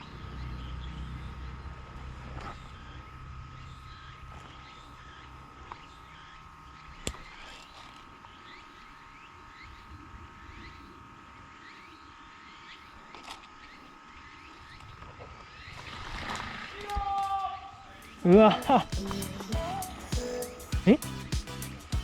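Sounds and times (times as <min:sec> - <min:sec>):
steady high tone: 0:17.7 - 0:22.0.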